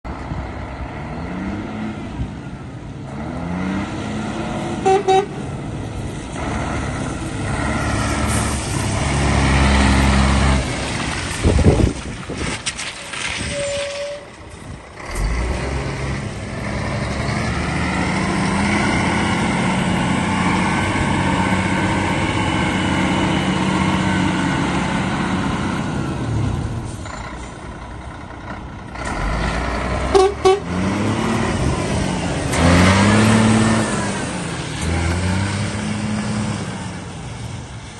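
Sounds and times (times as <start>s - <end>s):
truck diesel engine revving: 0.1s - 11.8s, 14.4s - 37.8s
short beeps: 13.5s - 14.3s.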